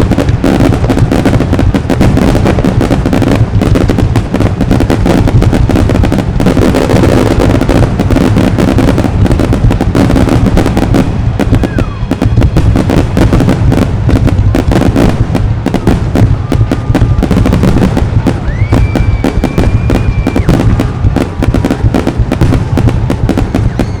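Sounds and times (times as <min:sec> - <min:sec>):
fireworks booming and crackling: 0:00.0 - 0:24.0
high firework whistle: 0:04.8 - 0:24.0.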